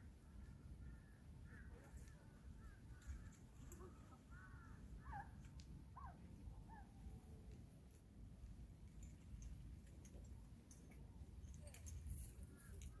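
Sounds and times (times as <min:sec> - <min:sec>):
faint bird calls: 0:00.0 - 0:07.3.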